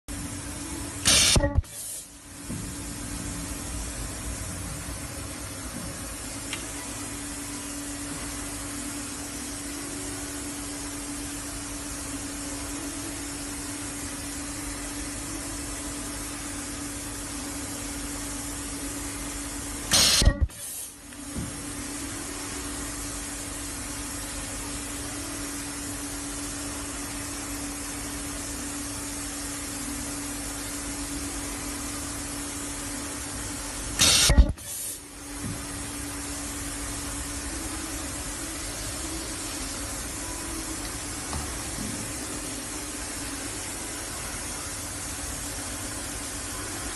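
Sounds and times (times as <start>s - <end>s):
welding machine hiss and hum: 0.1s - 46.9s
sharp machine burst: 1.0s - 2.0s, 19.9s - 20.8s, 34.0s - 34.8s.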